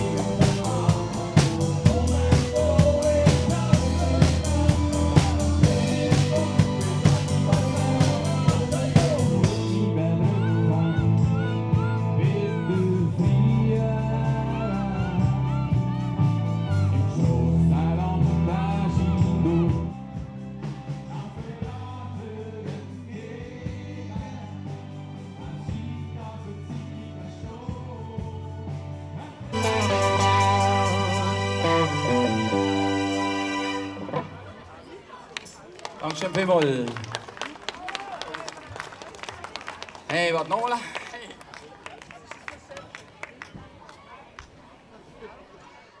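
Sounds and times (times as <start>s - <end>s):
drums hitting hard: 0.0s - 9.8s
live rock band playing: 0.0s - 12.5s, 29.5s - 34.6s
person singing: 0.0s - 15.4s, 29.5s - 34.3s.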